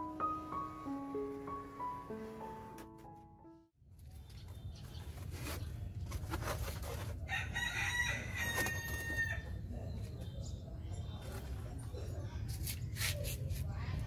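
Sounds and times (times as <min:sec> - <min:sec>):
rooster crowing: 0:07.3 - 0:09.4.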